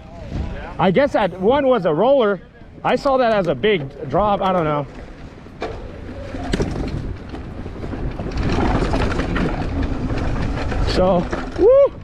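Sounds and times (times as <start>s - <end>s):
wind rushing over microphone: 0.0s - 4.4s, 5.1s - 12.0s
bike tyres rumbling on dirt: 0.0s - 12.0s
bike frame knocking and rattling: 2.7s - 12.0s.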